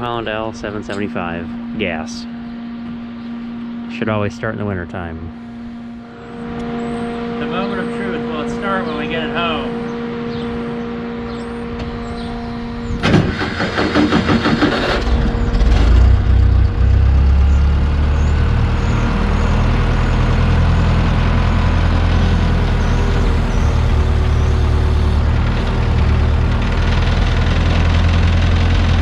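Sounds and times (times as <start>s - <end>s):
engine starting and running: 11.4s - 29.0s.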